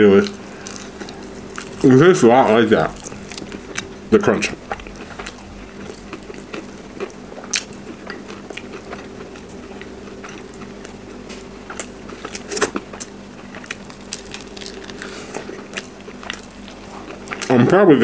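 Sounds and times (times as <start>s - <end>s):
faint low hum: 0.0s - 18.0s
wet chewing: 0.1s - 17.6s
crisp crunches: 11.8s - 17.6s.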